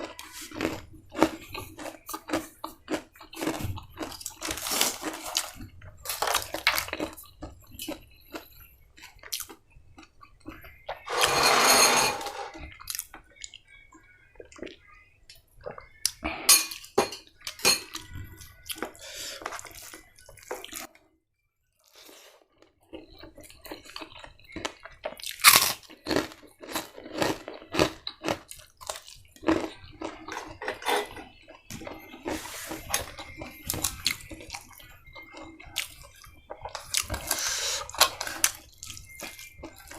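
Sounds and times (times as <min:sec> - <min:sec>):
chewing and crunching: 0:00.0 - 0:11.2, 0:12.6 - 0:16.5, 0:17.2 - 0:21.1, 0:21.8 - 0:39.9
utensils tapping on dishes: 0:11.1 - 0:12.6, 0:16.5 - 0:18.0, 0:30.3 - 0:31.3.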